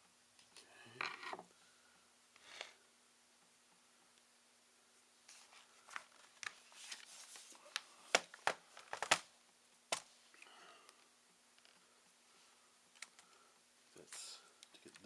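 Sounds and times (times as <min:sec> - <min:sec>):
rustling and scraping: 0:05.2 - 0:07.8.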